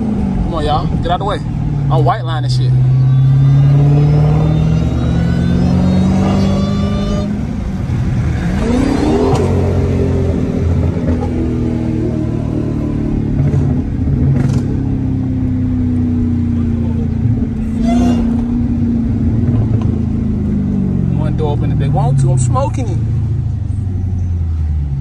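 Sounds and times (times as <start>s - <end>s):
car engine accelerating hard: 0.0s - 25.0s.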